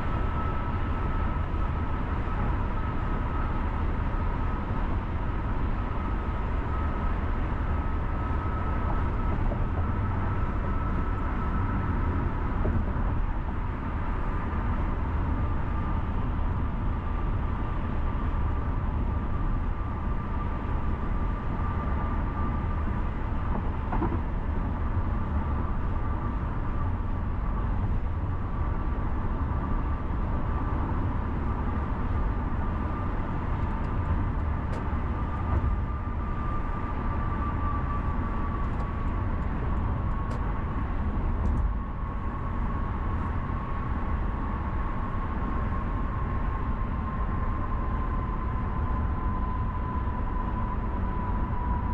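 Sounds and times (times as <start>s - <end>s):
car engine and tyre rumble: 0.0s - 51.9s
faint whining tones: 0.0s - 51.9s.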